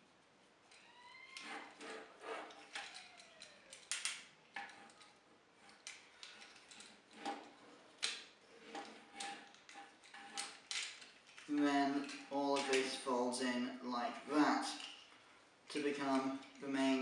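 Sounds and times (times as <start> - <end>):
plastic toy parts clicking: 2.4 - 13.0, 14.7 - 15.0.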